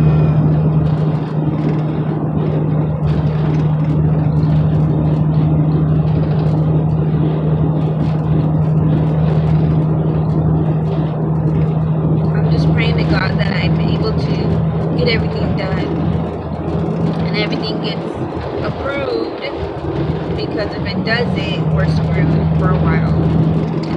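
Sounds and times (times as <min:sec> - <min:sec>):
road and tyre noise: 0:00.0 - 0:23.9
truck engine hum: 0:00.0 - 0:23.9.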